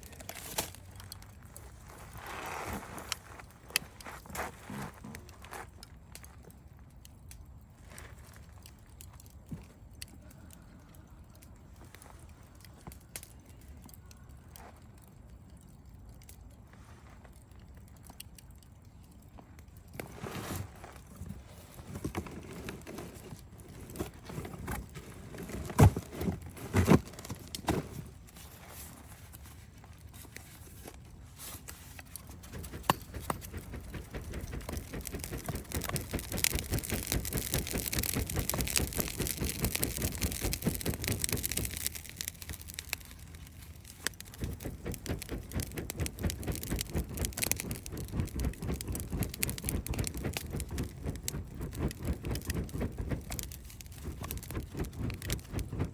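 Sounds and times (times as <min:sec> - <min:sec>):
campfire crackling and popping: 0:00.0 - 0:55.9
fire hissing: 0:30.1 - 0:55.9.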